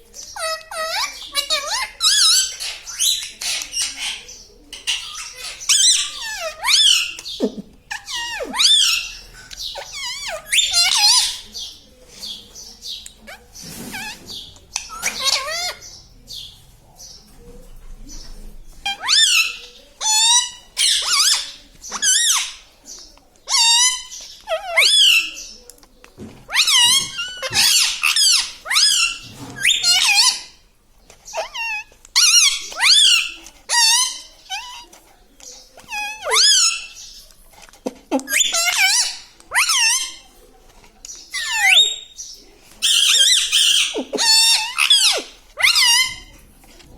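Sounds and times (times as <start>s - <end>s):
parrot shrill calls: 14.9s - 15.8s, 23.5s - 25.3s, 26.5s - 30.6s, 31.3s - 34.8s, 35.9s - 37.0s, 38.3s - 40.2s, 41.4s - 42.1s, 42.8s - 46.4s.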